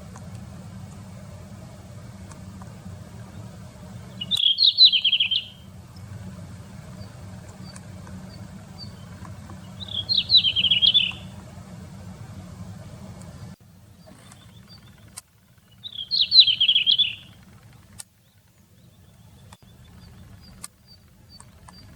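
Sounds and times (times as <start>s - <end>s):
low background rumble: 0.0s - 21.9s
bird singing: 3.2s - 11.4s, 13.4s - 21.9s.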